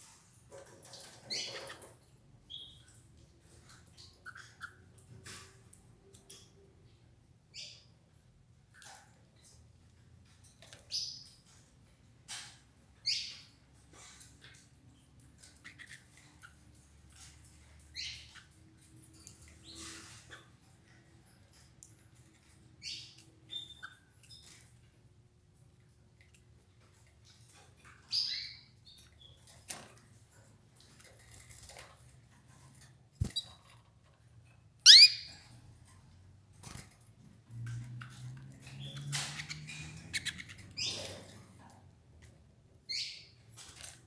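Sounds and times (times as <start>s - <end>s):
canary chirping: 0.5s - 3.1s, 3.9s - 5.2s, 7.5s - 8.0s, 13.0s - 13.6s, 14.4s - 20.4s, 22.8s - 24.6s, 26.8s - 29.5s, 33.2s - 33.7s, 34.8s - 35.8s, 38.6s - 41.4s, 42.8s - 43.6s
birds pecking clicks and rustles: 13.7s - 28.2s, 28.9s - 34.6s, 35.5s - 42.4s, 43.4s - 44.0s
canary call notes: 34.9s - 35.4s
faint chirps: 34.9s - 35.4s.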